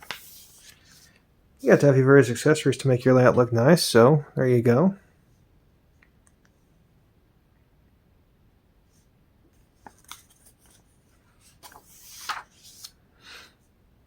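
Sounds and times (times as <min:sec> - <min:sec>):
paper rustling and swishing: 0:00.0 - 0:01.2, 0:09.7 - 0:13.0.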